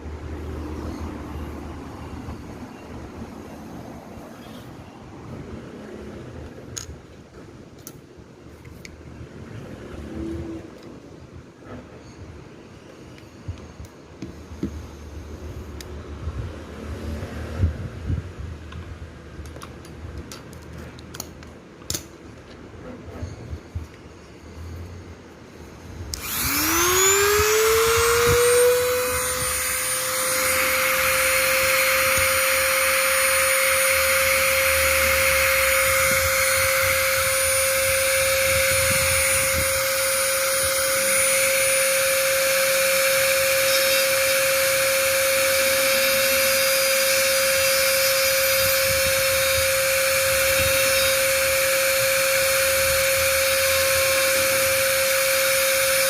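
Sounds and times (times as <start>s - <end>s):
small electric motor whine: 26.1s - 56.0s.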